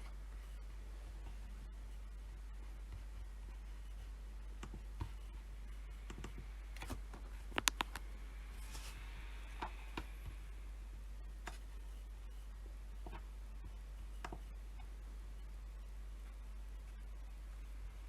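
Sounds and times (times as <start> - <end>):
low steady hum: 0.0 - 18.0
keyboard and mouse clicks: 6.1 - 8.0.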